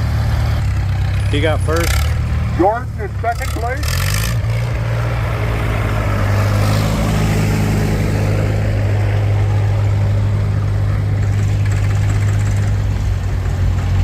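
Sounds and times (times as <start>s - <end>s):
tractor engine idling: 0.0s - 4.2s, 8.6s - 14.0s.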